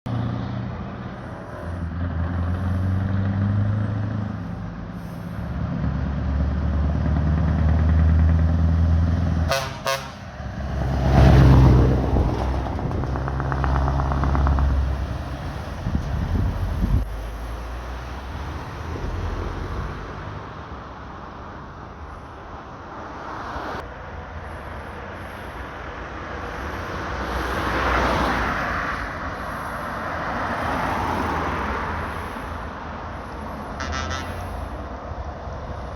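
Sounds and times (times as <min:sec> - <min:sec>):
trucks driving past: 0:00.1 - 0:35.9
truck horn toots: 0:09.4 - 0:10.3, 0:33.8 - 0:34.6.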